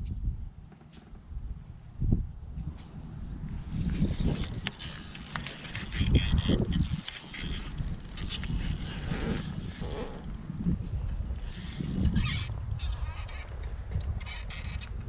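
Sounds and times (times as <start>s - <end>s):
fishing reel ratcheting whir: 3.9s - 12.5s.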